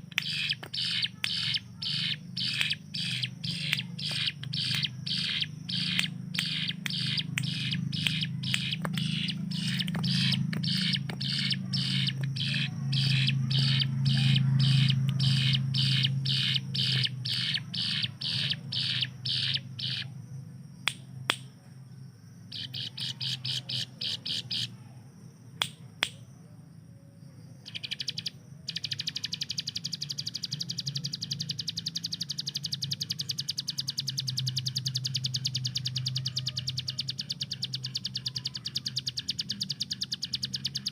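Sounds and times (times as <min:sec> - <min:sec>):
bird rattling trill: 0:00.0 - 0:20.1
bird singing sharp high chirps: 0:00.0 - 0:20.2, 0:22.5 - 0:24.7, 0:27.6 - 0:40.9
steady low hum: 0:00.0 - 0:40.9.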